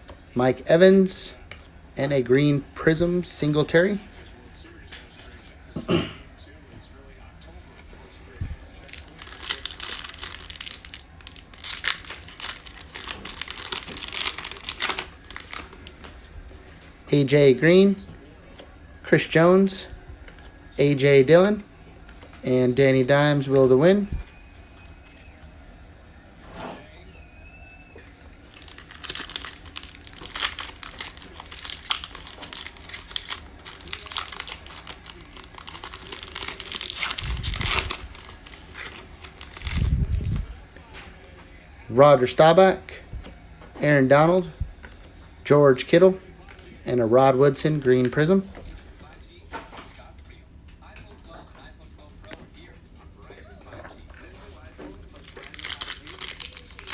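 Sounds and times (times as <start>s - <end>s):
foil wrapper crinkling and tearing: 8.6s - 16.3s, 28.4s - 40.6s, 54.6s - 56.9s.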